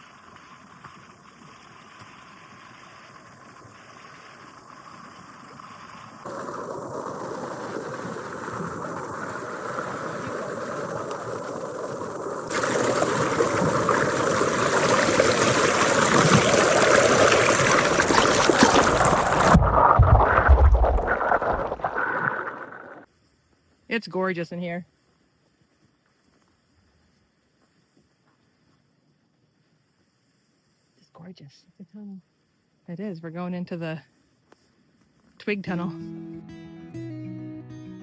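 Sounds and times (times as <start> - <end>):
creek water rushing: 6.2 - 23.0
low thumps: 19.0 - 22.5.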